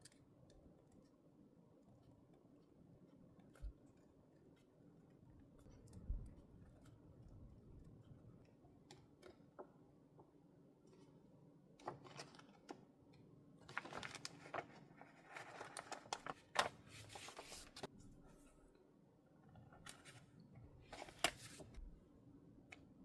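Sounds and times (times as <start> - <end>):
paper rustling: 11.8 - 12.8, 13.6 - 17.9, 19.8 - 21.9.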